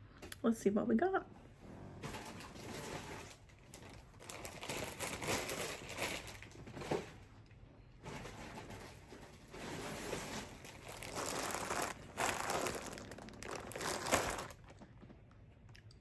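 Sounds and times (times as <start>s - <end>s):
plastic packaging crinkling: 2.8s - 6.8s, 9.6s - 15.0s.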